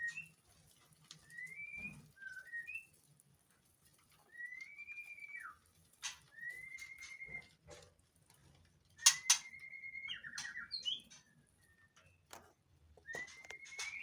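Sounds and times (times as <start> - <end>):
bird singing whistled notes: 1.3 - 2.9, 6.3 - 7.4, 9.0 - 12.0, 13.0 - 14.0.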